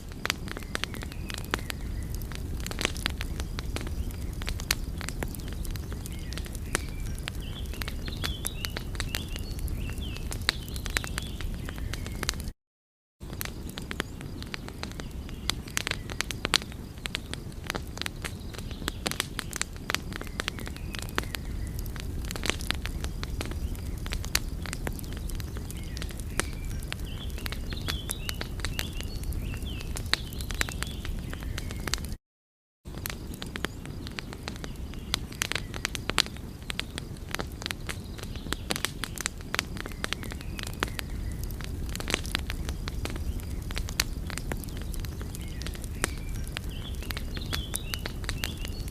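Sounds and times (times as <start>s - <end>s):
wood fire crackling and popping: 0.0s - 12.5s, 13.2s - 32.2s, 32.9s - 48.9s.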